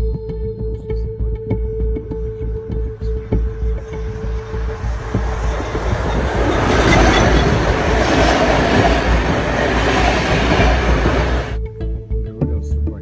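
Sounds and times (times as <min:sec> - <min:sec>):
train wheels rumbling on rails: 0:03.1 - 0:11.6.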